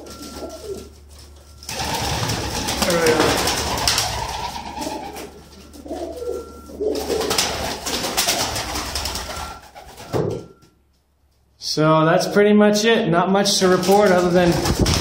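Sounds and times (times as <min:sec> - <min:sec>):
pigeons cooing: 0:00.0 - 0:10.3
steady rustling: 0:00.0 - 0:10.6.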